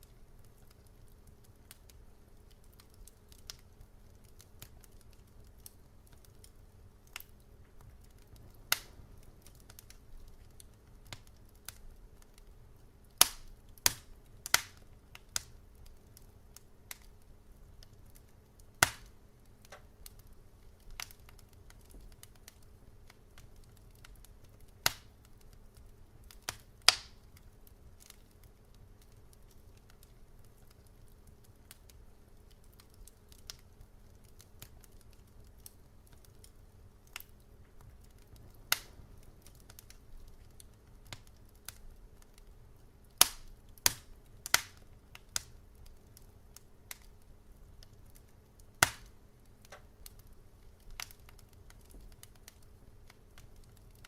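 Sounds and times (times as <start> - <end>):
faint low rumble: 0.0 - 54.0
wood fire crackling and popping: 0.0 - 54.0.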